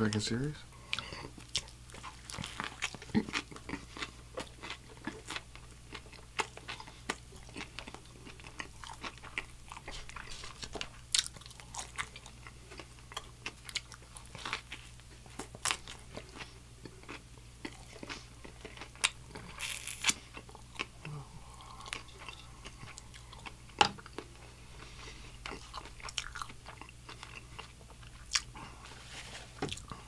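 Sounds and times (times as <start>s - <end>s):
crunchy chewing: 0.9s - 30.0s
biting crispy sandwich: 18.8s - 20.2s.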